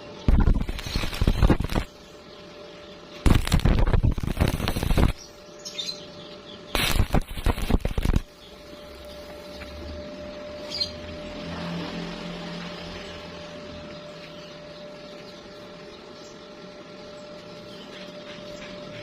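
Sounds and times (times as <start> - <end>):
faint steady hum: 0.0 - 19.0
welding arc crackling: 0.2 - 2.1, 3.2 - 5.4, 6.7 - 9.3.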